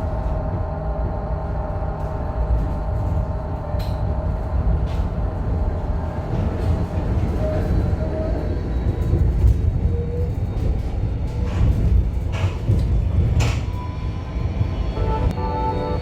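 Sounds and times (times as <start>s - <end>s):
tram rumbling: 0.0s - 16.0s
music: 15.0s - 16.0s.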